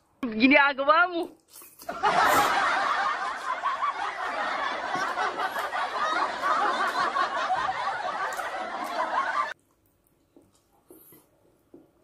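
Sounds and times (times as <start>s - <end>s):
snickering and chuckling laughter: 1.8s - 9.6s.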